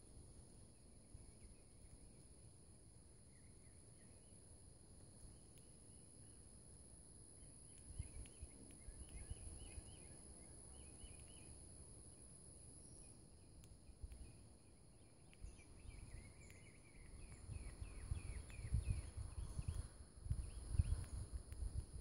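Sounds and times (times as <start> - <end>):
high insect drone: 0.0 - 22.0
small birds chirping: 7.2 - 22.0.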